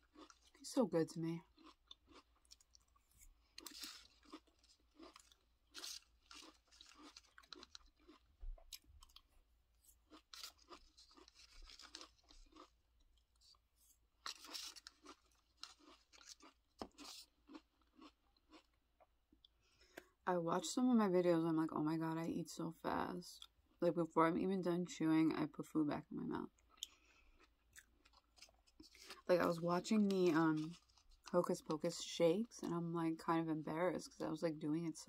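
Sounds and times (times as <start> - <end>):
crunching cereal: 0.0 - 0.7, 1.4 - 18.8, 26.6 - 31.8.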